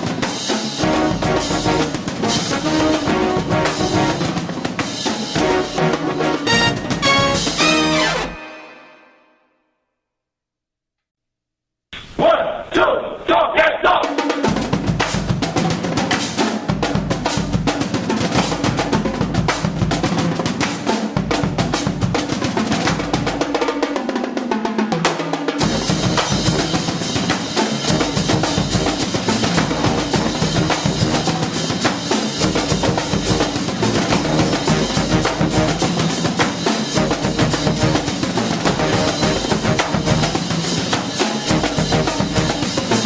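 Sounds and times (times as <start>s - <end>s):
snare and bass drums: 0.0s - 8.4s, 14.0s - 24.1s, 25.0s - 43.0s
marching band music: 0.0s - 9.4s, 25.2s - 43.0s.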